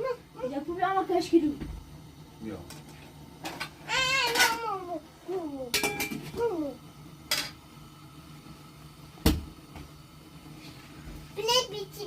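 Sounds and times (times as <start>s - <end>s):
kitchenware clinking: 2.6s - 4.7s, 5.7s - 6.5s, 7.3s - 7.6s.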